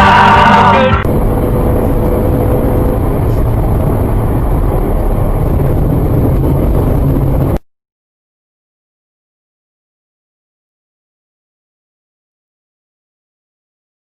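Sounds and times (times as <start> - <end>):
car road and engine noise: 0.0 - 7.6.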